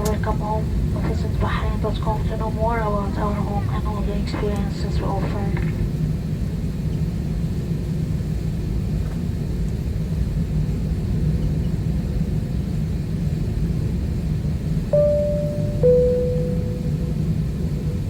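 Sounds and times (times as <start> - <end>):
airplane cabin rumble: 0.0 - 9.3, 14.5 - 18.0
two-note chime tone: 15.0 - 18.0.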